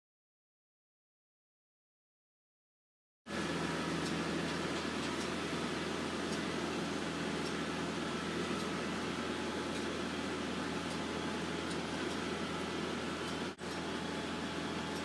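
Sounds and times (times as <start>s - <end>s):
tractor engine running: 3.3s - 15.0s.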